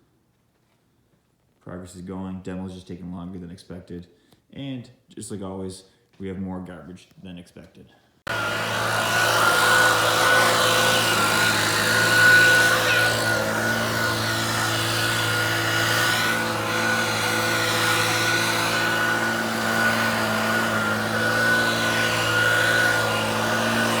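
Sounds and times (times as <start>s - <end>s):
motor running steadily: 8.3s - 24.0s.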